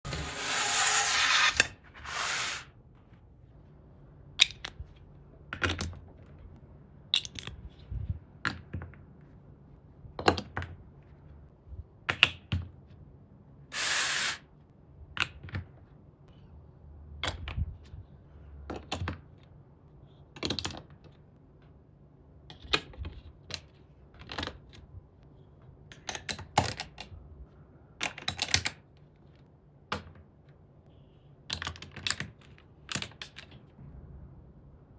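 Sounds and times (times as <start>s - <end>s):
pieces rustling and scraping: 0.1s - 2.7s.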